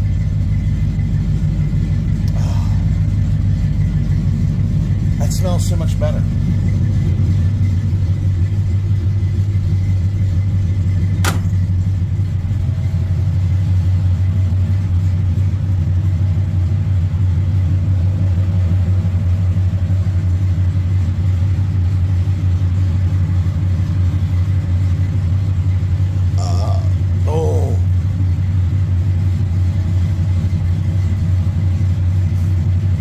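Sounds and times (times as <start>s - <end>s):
pickup engine idling: 0.0s - 33.0s
sharp click: 11.2s - 11.6s.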